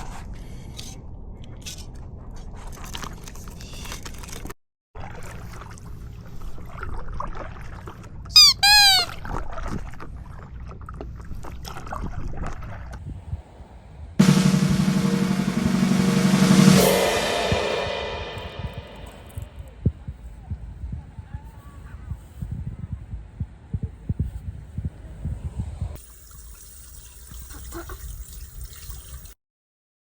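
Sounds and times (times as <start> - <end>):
short two-note pitched call: 14.2 - 18.6
drum-kit music: 14.2 - 19.8.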